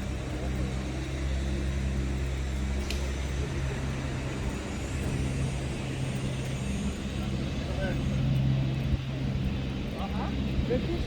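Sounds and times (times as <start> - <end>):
road traffic noise: 0.0 - 11.0
vehicle engine drone: 0.0 - 11.0
faint tick: 2.8 - 3.1.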